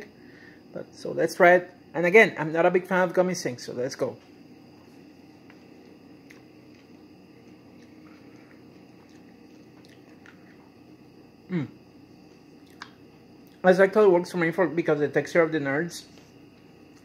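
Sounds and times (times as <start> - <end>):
steady low hum: 0.0 - 17.0
chewing candy: 5.4 - 11.0, 12.2 - 13.6
short falling voice hum: 11.5 - 11.8.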